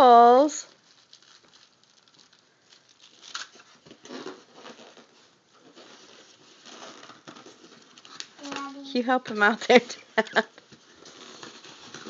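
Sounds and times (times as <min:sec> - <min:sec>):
packaging rustling: 0:00.7 - 0:08.9, 0:10.6 - 0:12.0.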